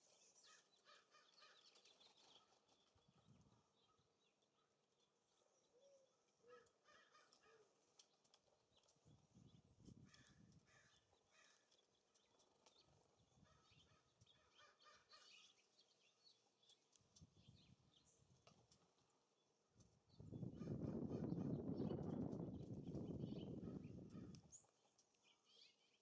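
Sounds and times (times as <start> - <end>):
wind gusts on microphone: 20.1 - 24.5.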